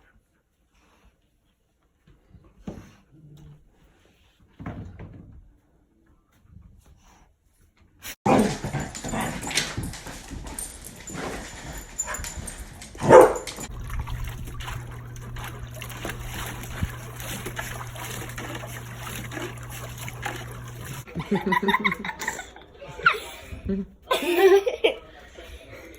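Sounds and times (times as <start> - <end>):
steady low hum: 8.7 - 21.1.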